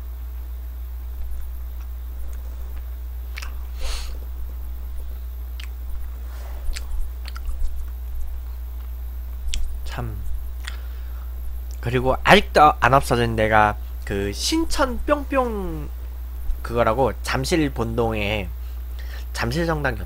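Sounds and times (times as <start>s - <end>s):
steady low hum: 0.0s - 20.0s
person chewing doughnut: 1.2s - 9.8s, 10.6s - 10.9s
wet mouth clicks: 1.7s - 3.7s, 5.6s - 9.8s, 10.6s - 10.8s
breath: 10.7s - 11.3s, 18.6s - 19.3s.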